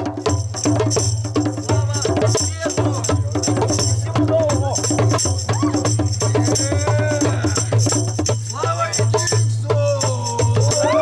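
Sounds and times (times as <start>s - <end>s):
rattling shakers or tambourine: 0.0s - 11.0s
voices singing: 5.5s - 11.0s.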